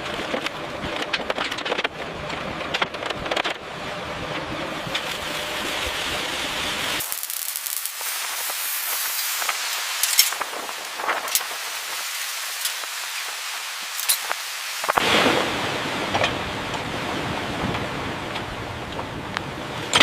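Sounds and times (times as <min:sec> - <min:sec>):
spraying hiss: 0:04.9 - 0:15.1.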